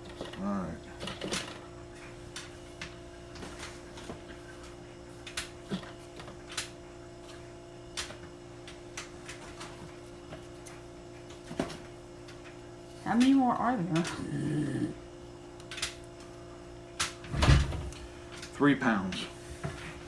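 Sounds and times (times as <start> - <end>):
steady low hum: 12.1 - 20.0.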